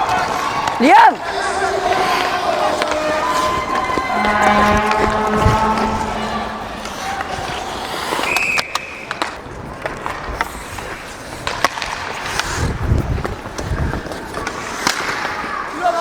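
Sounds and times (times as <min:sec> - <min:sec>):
sticks and puck clacking: 0:00.0 - 0:06.1, 0:06.8 - 0:15.8
skates scraping on ice: 0:00.0 - 0:16.0
high-pitched squeak: 0:03.7 - 0:07.7
low rumble: 0:03.8 - 0:07.8.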